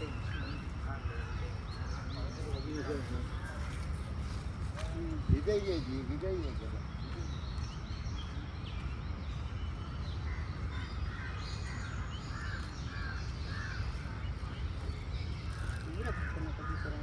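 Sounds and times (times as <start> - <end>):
bird cawing: 10.7 - 14.2.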